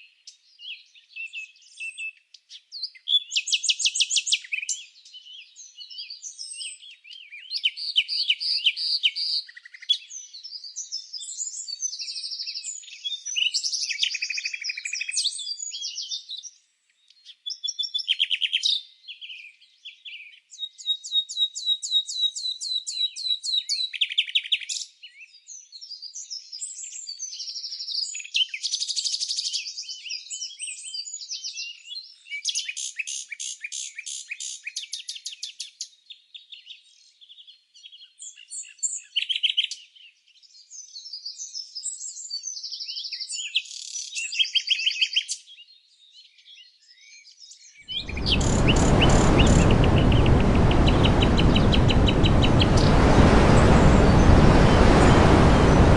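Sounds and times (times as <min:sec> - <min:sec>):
songbirds singing: 0:00.0 - 0:55.9
loud steady rushing noise: 0:48.0 - 0:55.9.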